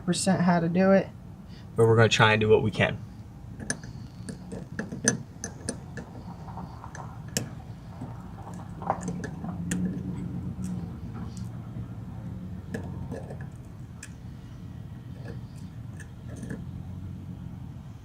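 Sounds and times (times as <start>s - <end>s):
steady low hum: 0.0s - 18.0s
clicks of plastic fuel line fitting: 3.6s - 11.5s.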